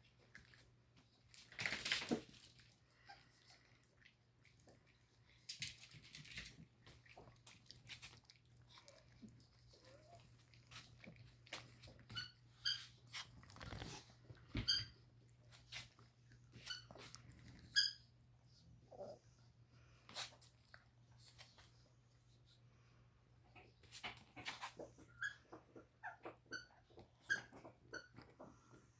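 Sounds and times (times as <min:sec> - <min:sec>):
dogs chewing and licking: 0:00.0 - 0:17.8.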